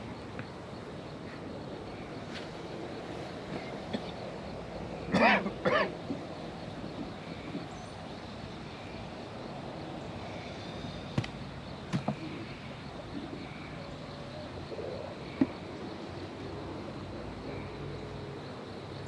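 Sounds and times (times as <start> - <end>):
low background noise: 0.0 - 19.0
beehive boxes knocking and clicking: 11.2 - 12.4.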